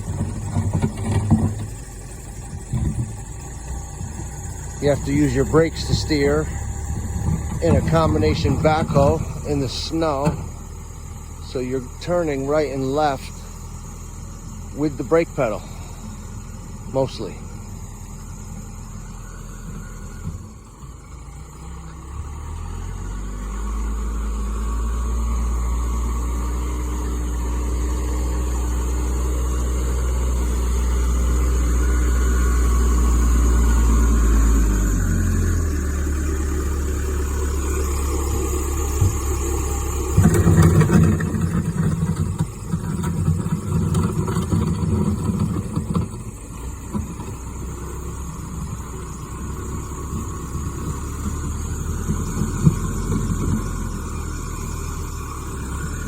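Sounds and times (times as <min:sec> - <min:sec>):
diesel engine working: 0:00.0 - 0:56.0.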